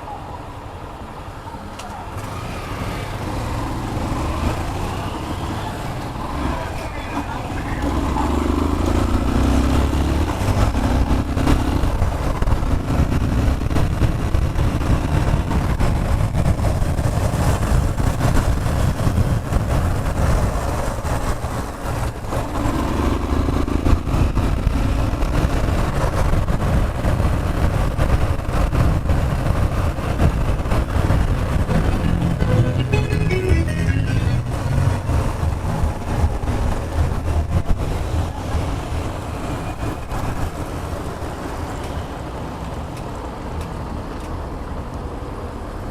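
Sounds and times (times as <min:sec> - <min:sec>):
wind and road noise: 0:00.0 - 0:33.0, 0:34.0 - 0:45.9
motorcycle engine: 0:31.0 - 0:35.8.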